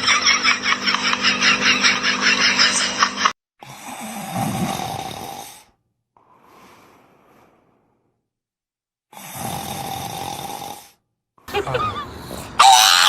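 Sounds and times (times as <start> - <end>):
person snoring: 3.6 - 6.9, 9.1 - 11.0.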